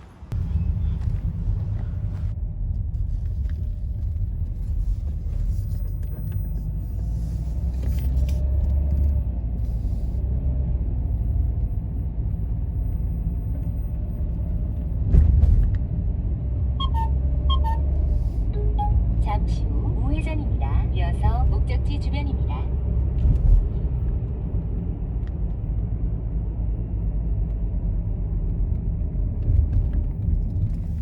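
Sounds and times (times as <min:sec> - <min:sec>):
road and engine rumble: 0:00.0 - 0:31.0
short electronic beeps: 0:16.8 - 0:18.0, 0:18.6 - 0:19.2.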